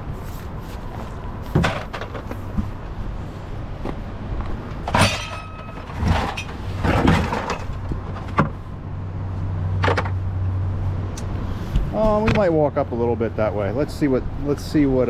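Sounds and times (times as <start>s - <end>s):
low steady hum: 0.0s - 15.0s
sharp knocks and clatters: 1.4s - 2.8s, 4.8s - 8.6s.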